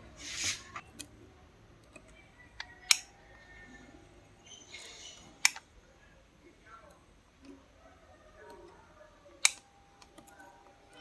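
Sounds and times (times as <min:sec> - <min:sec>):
hissing rustle: 0:00.2 - 0:00.8.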